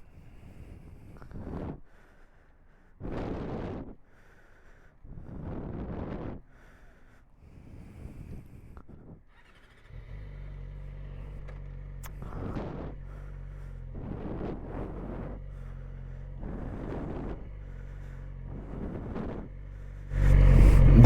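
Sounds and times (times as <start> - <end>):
motorcycle engine idling: 9.3 - 21.0
rushing noise: 20.1 - 21.0.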